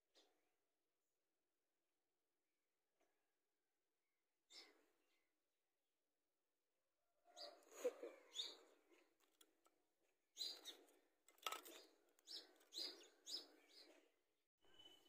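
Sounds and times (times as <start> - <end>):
faint bird chirps: 10.4 - 15.0.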